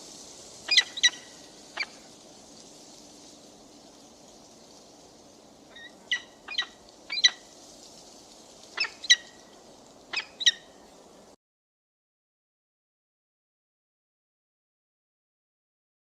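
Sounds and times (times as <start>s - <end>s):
faint steady hiss: 0.0s - 11.4s
bird of prey calling: 0.7s - 2.0s, 5.7s - 7.5s, 8.8s - 9.4s, 10.1s - 10.8s.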